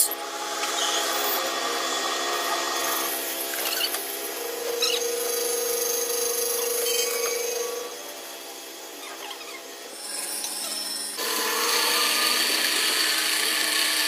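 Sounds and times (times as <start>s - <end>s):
steady whine: 0.0s - 11.4s
power tool running: 0.0s - 14.0s
tool scraping metal gear: 4.7s - 7.9s.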